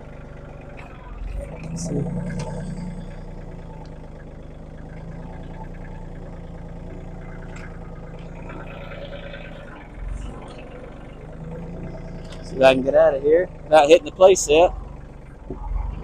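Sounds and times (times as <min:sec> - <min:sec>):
land-clearing machine engine running: 0:00.0 - 0:16.0.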